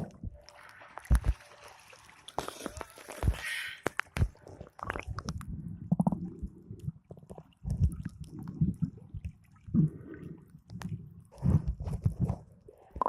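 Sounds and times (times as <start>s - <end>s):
underwater gurgling and rumbling: 2.4s - 13.0s.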